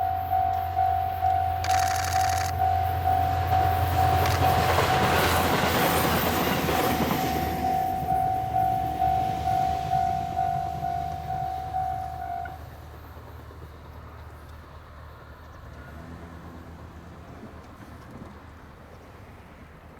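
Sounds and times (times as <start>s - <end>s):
pulsing warning tone: 0.0s - 12.6s
railcar passing: 0.0s - 19.9s.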